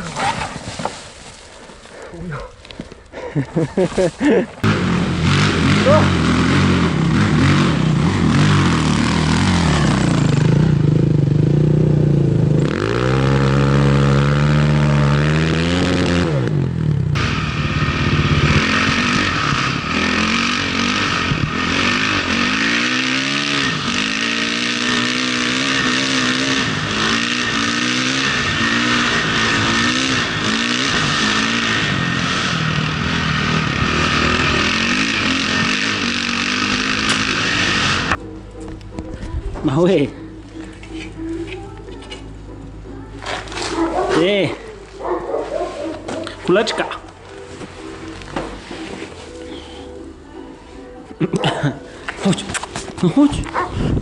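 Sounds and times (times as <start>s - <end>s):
motorcycle engine revving: 4.6s - 38.4s.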